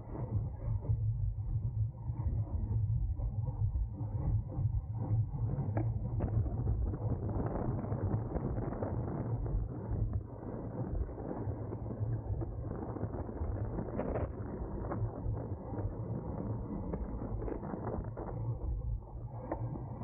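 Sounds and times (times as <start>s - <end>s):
wind buffeting microphone: 5.0s - 18.8s.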